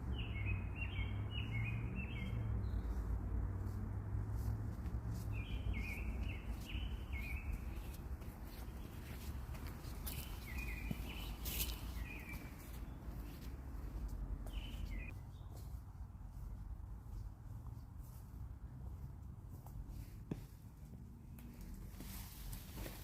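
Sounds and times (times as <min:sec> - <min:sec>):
songbird chirping: 0:00.0 - 0:15.8.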